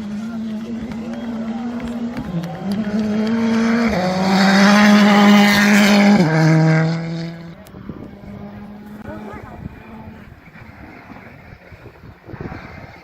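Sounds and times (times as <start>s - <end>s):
rally car accelerating past: 0.0s - 9.2s.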